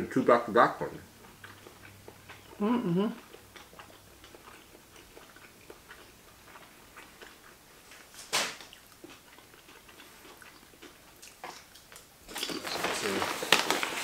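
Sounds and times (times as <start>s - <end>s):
people chewing with wet mouth clicks: 1.0s - 12.9s.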